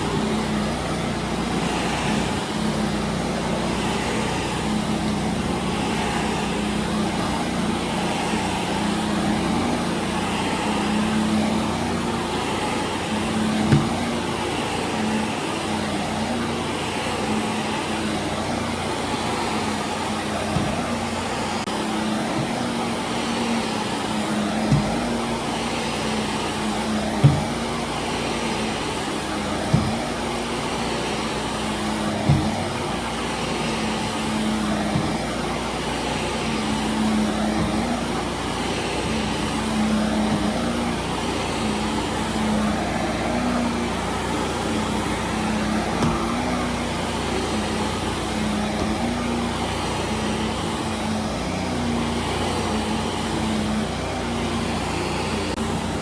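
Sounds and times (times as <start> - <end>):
vacuum cleaner on carpet: 0.0 - 56.0
low thump: 27.1 - 27.6, 32.2 - 32.7.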